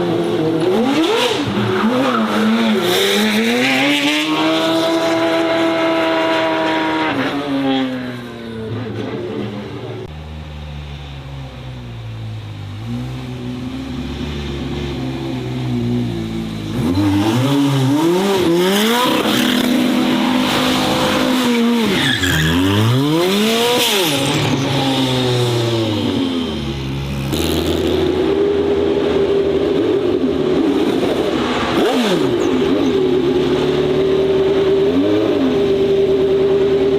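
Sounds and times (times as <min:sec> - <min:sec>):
race car engine revving: 0:00.0 - 0:08.0, 0:12.8 - 0:36.9.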